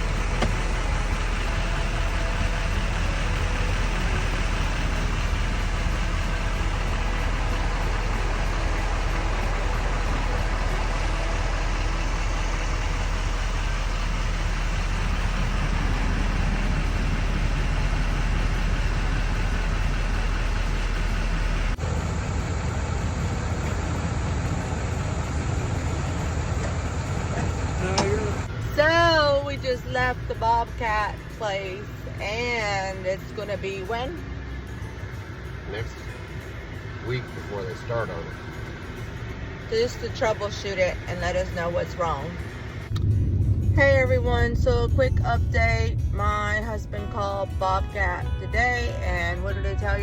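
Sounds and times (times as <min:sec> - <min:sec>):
road noise: 0:00.0 - 0:50.0
vehicle engine with low hum: 0:00.0 - 0:50.0.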